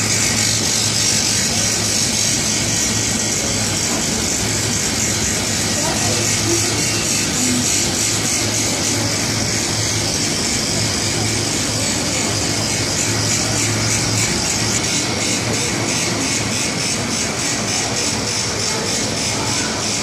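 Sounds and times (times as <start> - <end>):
electric train humming and hissing: 0.0 - 20.0.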